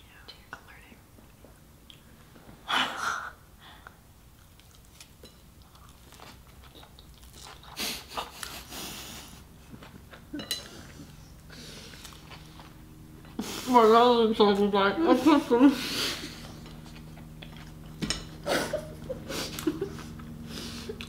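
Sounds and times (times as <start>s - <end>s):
wet crunchy chewing: 4.4s - 8.7s, 16.4s - 18.0s.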